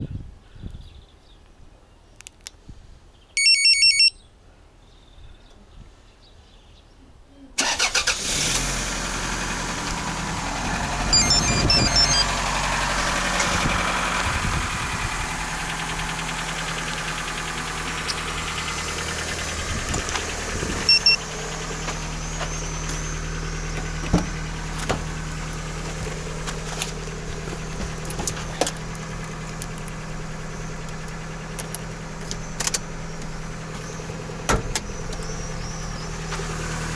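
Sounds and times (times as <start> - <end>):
loud electronic beep: 3.4 - 4.2, 11.1 - 12.3, 20.9 - 21.2
car engine starting and idling: 7.6 - 36.9.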